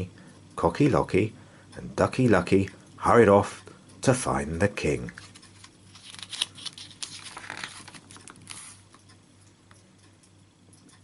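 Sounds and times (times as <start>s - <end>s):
paper page rustling: 5.1s - 8.9s.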